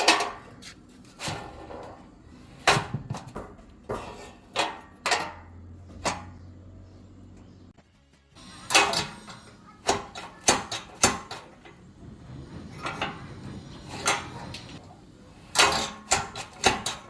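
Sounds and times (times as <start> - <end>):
metal door latch clanking: 8.7 - 11.8, 15.5 - 17.0.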